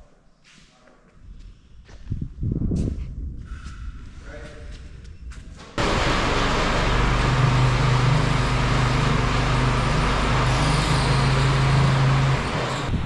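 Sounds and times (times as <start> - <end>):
vehicle engine drone: 5.8 - 13.0.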